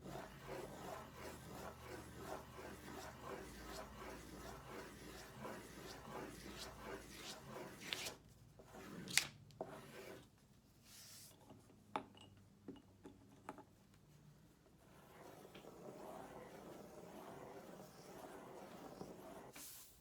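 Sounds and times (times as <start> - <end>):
crayons scribbling on paper: 0.0 - 9.0, 15.1 - 19.5.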